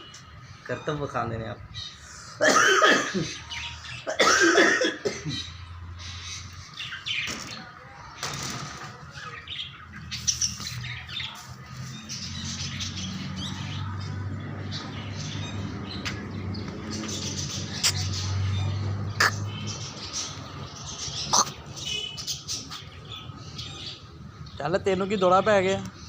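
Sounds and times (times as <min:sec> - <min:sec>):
birds chirping and squawking: 0:00.0 - 0:26.0.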